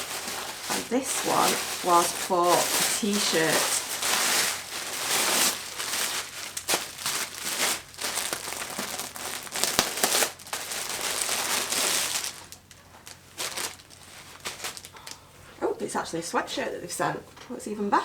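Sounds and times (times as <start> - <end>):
packaging crinkling and tearing: 0.0 - 15.2.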